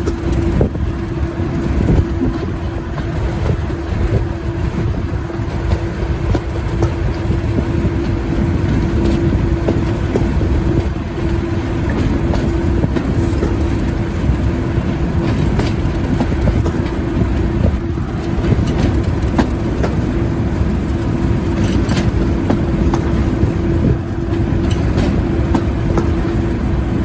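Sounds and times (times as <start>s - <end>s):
diesel locomotive engine rumble: 0.0s - 27.0s
wheels clicking on rails: 0.0s - 27.0s.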